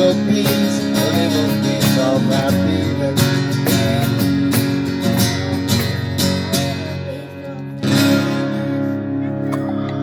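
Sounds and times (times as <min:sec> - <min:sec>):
cajon beats: 0:00.0 - 0:06.9
acoustic guitar strumming: 0:00.0 - 0:10.0.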